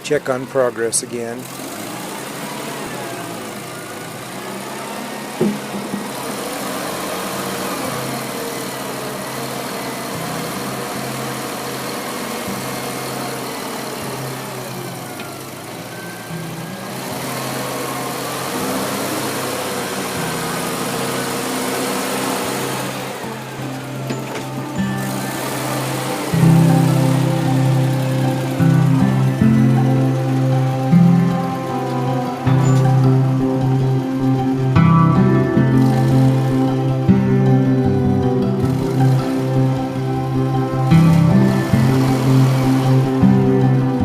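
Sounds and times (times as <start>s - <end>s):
mini excavator running: 0.0s - 44.0s
sharp knock: 5.4s - 6.3s.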